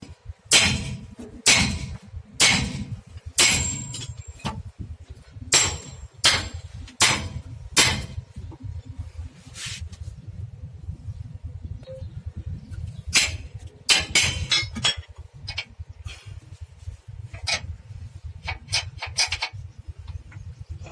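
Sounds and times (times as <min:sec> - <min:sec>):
steady low rumble: 0:00.0 - 0:20.9
metallic ring: 0:00.5 - 0:04.5
hammer striking steel spring: 0:00.5 - 0:04.6, 0:05.5 - 0:08.2, 0:13.1 - 0:15.0.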